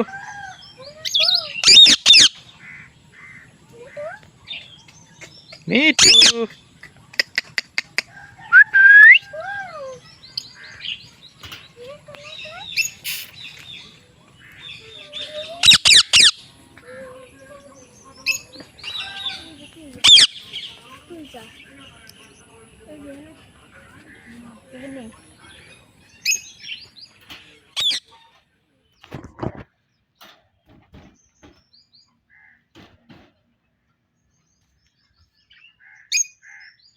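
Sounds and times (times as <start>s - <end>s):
parrot squawk: 0.2s - 3.4s, 15.5s - 16.4s, 20.0s - 20.4s
parrot chirping and squeaking: 1.1s - 2.4s, 6.0s - 6.4s, 10.0s - 13.6s, 15.2s - 16.5s, 20.0s - 20.4s, 25.8s - 28.4s
sharp parrot calls: 1.1s - 3.4s, 6.0s - 6.4s, 15.5s - 16.5s, 20.0s - 20.4s
parrot whistles and chirps: 8.5s - 9.3s.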